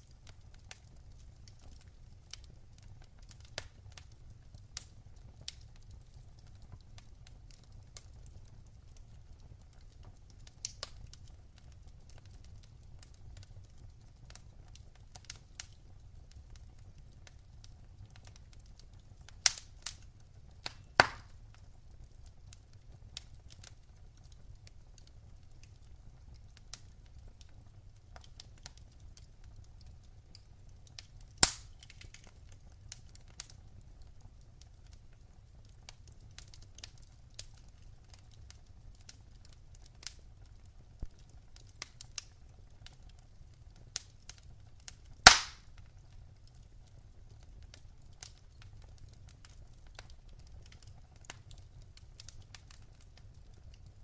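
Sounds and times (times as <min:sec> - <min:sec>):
wood fire crackling: 0:00.0 - 0:54.0
loud sharp pops from fire: 0:00.2 - 0:08.4, 0:09.6 - 0:21.7, 0:30.4 - 0:34.8, 0:41.0 - 0:43.2, 0:43.9 - 0:46.6.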